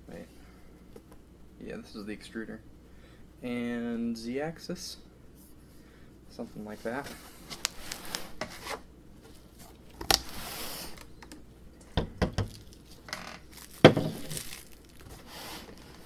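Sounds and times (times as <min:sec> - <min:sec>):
plastic packaging crinkling: 0:07.4 - 0:11.2, 0:12.2 - 0:16.0
parts knocking when set down: 0:11.9 - 0:14.4.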